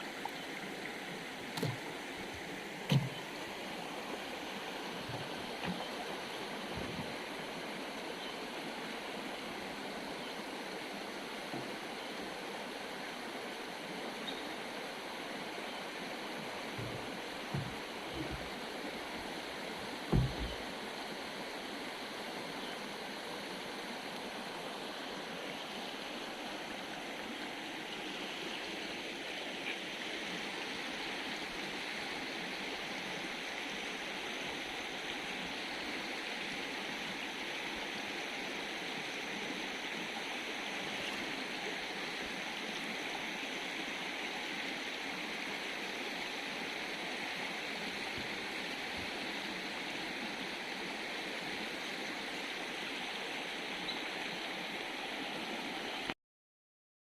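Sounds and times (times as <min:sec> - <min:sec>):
river water rushing: 0:00.0 - 0:56.2
short low thump: 0:02.9 - 0:03.2, 0:16.8 - 0:18.5, 0:20.1 - 0:20.6.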